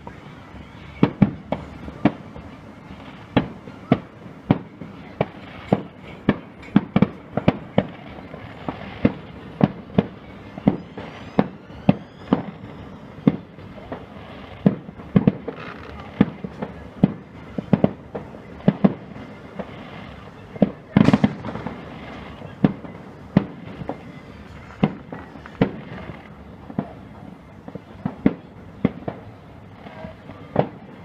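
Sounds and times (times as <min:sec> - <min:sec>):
fireworks bangs: 0:00.0 - 0:31.0
whistle of rising firework shell: 0:10.3 - 0:13.6.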